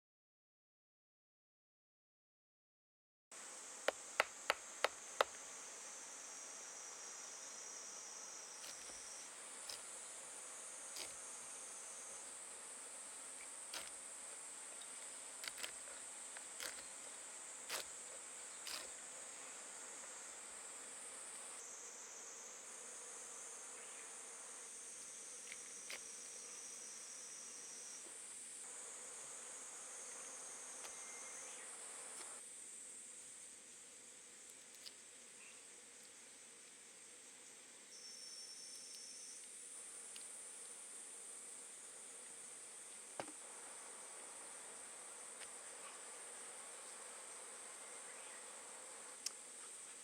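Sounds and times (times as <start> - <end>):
insects chirring: 3.4 - 50.0.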